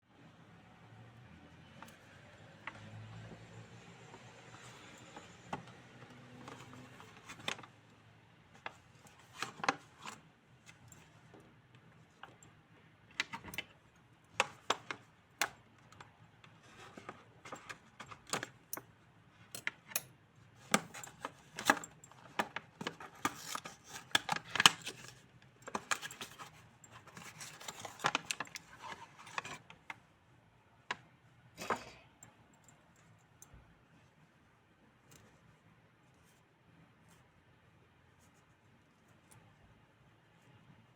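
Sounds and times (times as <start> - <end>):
packaging being handled and opened: 4.5 - 7.8, 8.5 - 11.1, 20.6 - 30.0.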